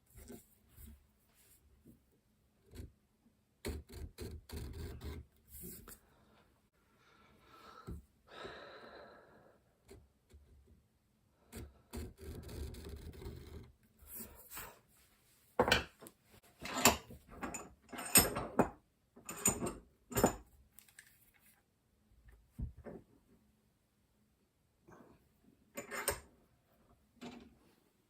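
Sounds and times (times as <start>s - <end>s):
tools scraping on wooden table: 16.6s - 20.4s, 25.8s - 26.3s.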